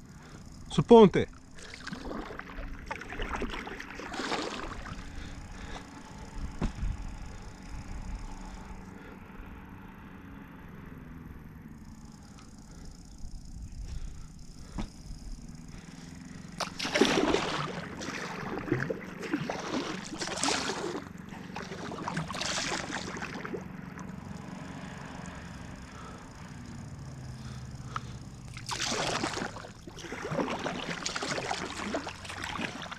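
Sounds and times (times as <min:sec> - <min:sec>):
water sloshing and dripping: 0:01.3 - 0:05.8, 0:16.6 - 0:24.2, 0:27.9 - 0:32.9
paddle stroke splashes: 0:01.6 - 0:05.8, 0:16.6 - 0:24.0, 0:28.5 - 0:32.9.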